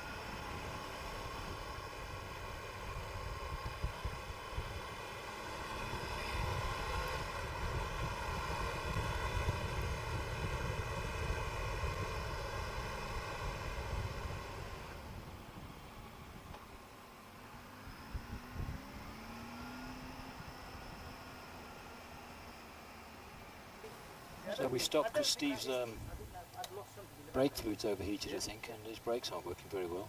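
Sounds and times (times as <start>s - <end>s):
wind at microphone: 0.0s - 16.9s, 17.6s - 21.7s
motorcycle engine running: 0.0s - 27.5s
road rumble: 0.0s - 30.0s.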